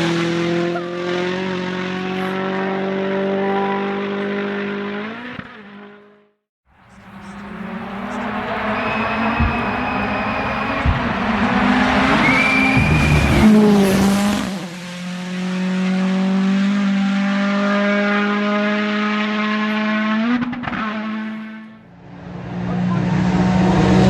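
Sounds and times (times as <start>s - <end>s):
rally car engine at full speed: 0.0s - 24.0s
tyre squeal: 6.9s - 14.1s.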